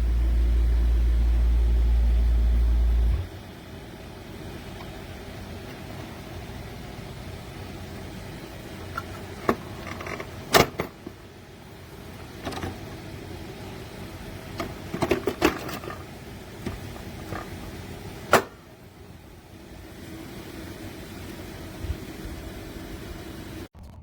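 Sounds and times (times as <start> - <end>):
dehumidifier fan hum: 0.0 - 23.7.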